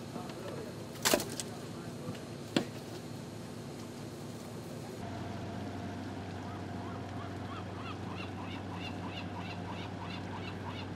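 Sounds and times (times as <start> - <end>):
low machine hum: 0.0 - 10.9
bird chirping: 6.4 - 10.9.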